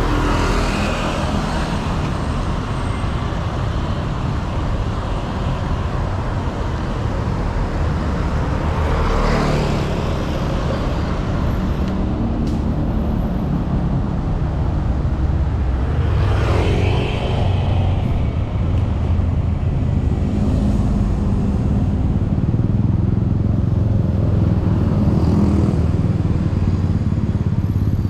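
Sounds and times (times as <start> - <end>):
road traffic rumble: 0.0 - 28.0
vehicle passing: 8.6 - 22.2.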